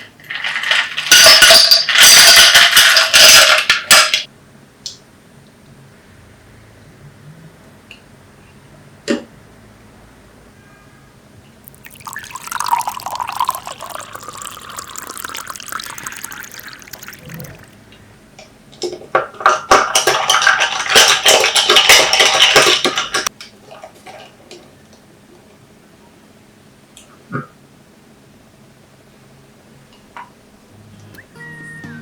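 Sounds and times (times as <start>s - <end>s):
liquid pouring into glass: 11.7s - 17.8s.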